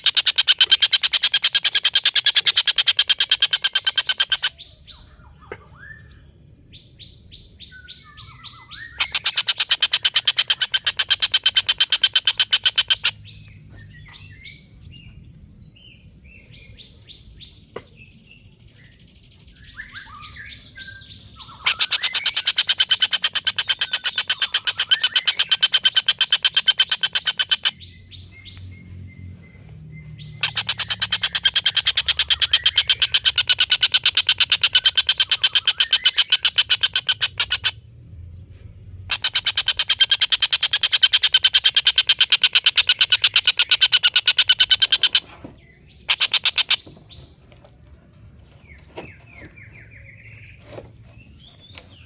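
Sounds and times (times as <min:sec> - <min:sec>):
soft bird chirps and trills: 0:00.0 - 0:52.0
kingfisher cackling call: 0:30.4 - 0:37.7, 0:39.1 - 0:45.2.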